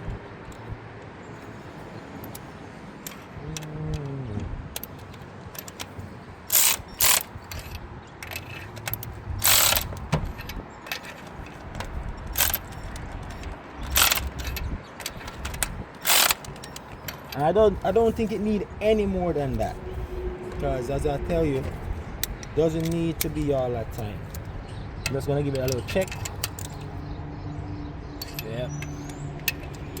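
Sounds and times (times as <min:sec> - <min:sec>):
ratchet wrench clicking: 0:04.8 - 0:17.6, 0:22.2 - 0:27.0, 0:28.2 - 0:30.0.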